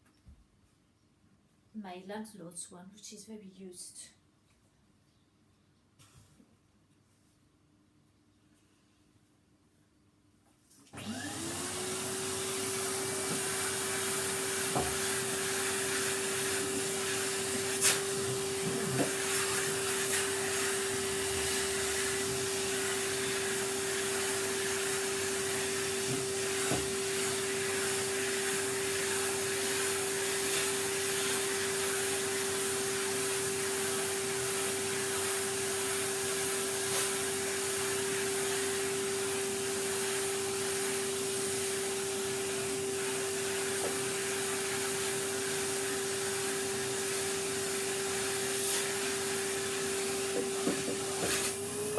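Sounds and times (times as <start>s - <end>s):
vacuum cleaner running: 10.9s - 51.9s.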